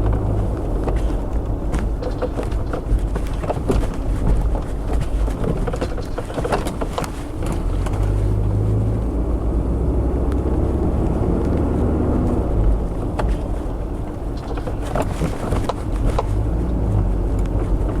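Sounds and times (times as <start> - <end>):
knocks and rattles: 0.0 - 8.6, 12.6 - 18.0
car engine hum and road noise: 0.0 - 18.0.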